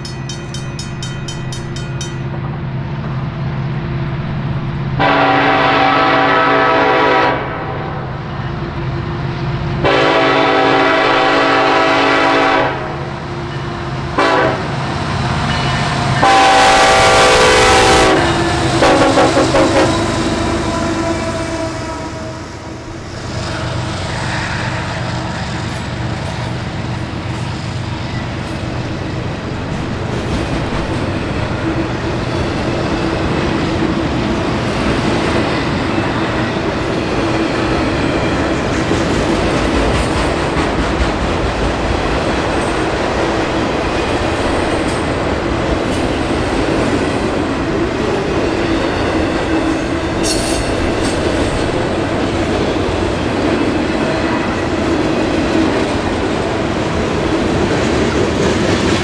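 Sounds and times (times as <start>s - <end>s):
freight train rolling past: 0.0s - 59.0s
wheel squeal on rail: 49.8s - 51.9s.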